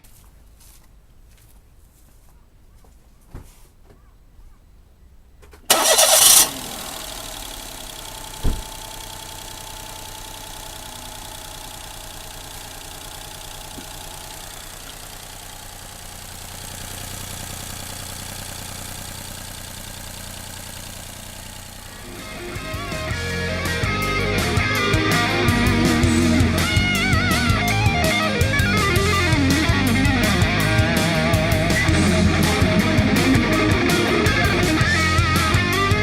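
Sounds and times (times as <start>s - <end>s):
car engine starting and idling: 5.3s - 36.0s
low thump: 8.3s - 8.8s.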